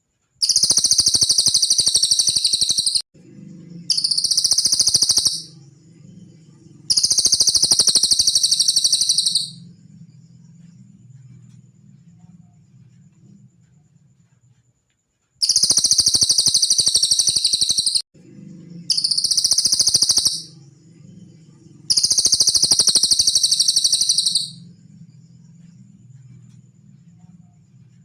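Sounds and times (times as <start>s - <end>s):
songbird high-pitched trills: 0.4s - 3.0s, 3.6s - 9.9s, 15.4s - 18.0s, 18.6s - 24.9s
faint low hum: 3.2s - 16.1s, 18.2s - 28.0s.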